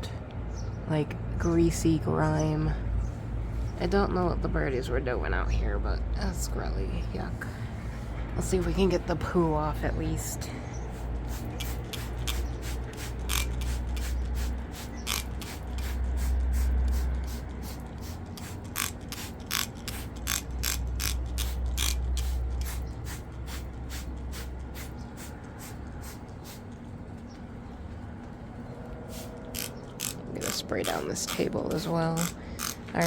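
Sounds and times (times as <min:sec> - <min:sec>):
steady low rumble: 0:00.0 - 0:33.0
spray bottle squirting: 0:10.9 - 0:26.7, 0:29.1 - 0:32.8.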